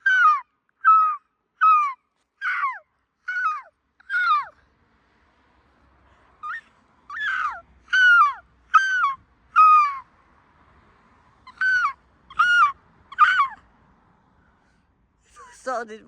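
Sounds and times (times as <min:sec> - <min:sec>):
seagulls calling: 0:00.0 - 0:04.6, 0:06.4 - 0:10.0, 0:11.4 - 0:13.6.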